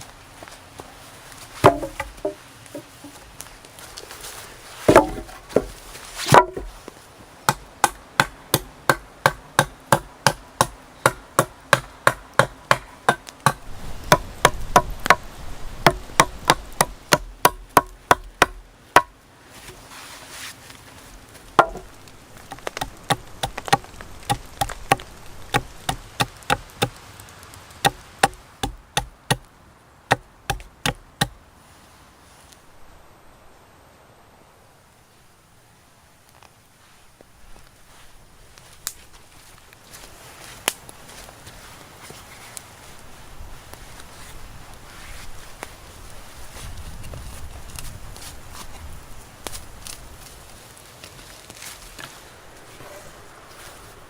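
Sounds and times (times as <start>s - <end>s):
chopping strikes into wood: 1.6s - 2.9s, 4.9s - 5.7s, 6.3s - 6.7s, 7.5s - 15.2s, 15.8s - 19.1s, 21.6s - 21.9s, 27.8s - 29.4s, 30.1s - 31.4s.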